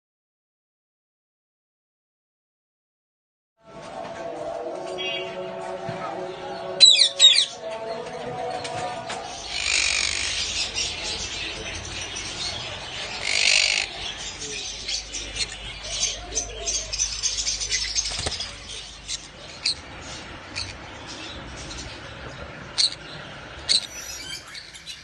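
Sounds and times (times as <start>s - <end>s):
parrots squawking and chirping: 6.8s - 7.6s, 9.2s - 25.0s
parrot screeches: 9.5s - 10.4s, 13.2s - 13.9s.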